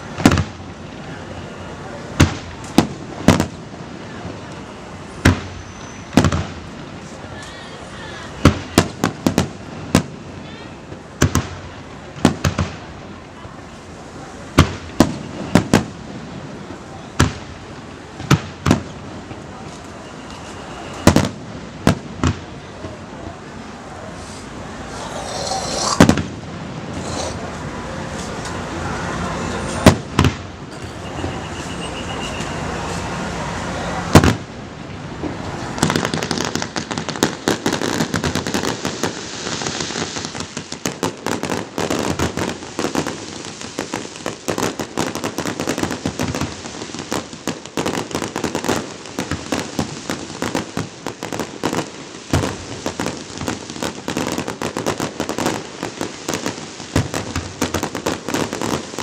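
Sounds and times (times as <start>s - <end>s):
fireworks crackling and popping: 0.0s - 59.0s
firework shell bursts: 24.3s - 26.3s.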